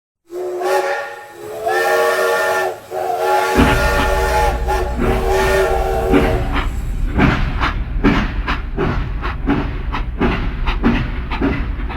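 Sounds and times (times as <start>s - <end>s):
train whistle blasts: 0.3s - 7.0s
hiss: 0.3s - 11.9s
train rumbling: 0.3s - 11.9s.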